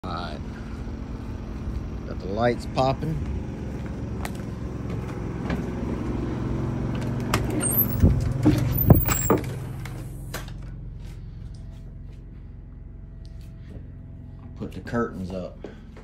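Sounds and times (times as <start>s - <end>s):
high squeaks: 7.5s - 9.5s.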